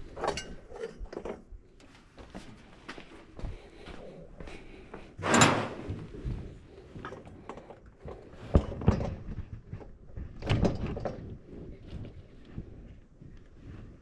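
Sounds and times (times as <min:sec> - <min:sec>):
tools scraping: 0:05.2 - 0:06.1.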